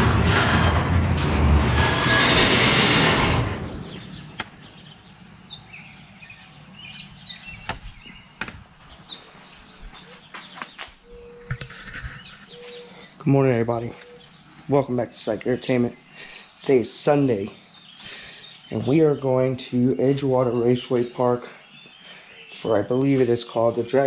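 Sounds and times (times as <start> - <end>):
loud rushing noise: 0.0 - 4.5
small birds chirping: 3.7 - 24.0.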